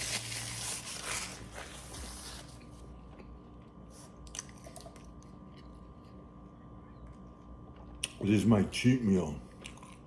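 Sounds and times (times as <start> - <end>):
faint steady hum: 0.0 - 10.0
person chewing food: 9.5 - 10.0.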